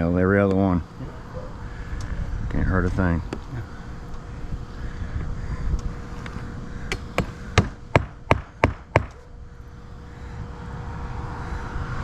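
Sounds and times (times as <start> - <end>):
hammer striking nails: 6.9 - 9.2.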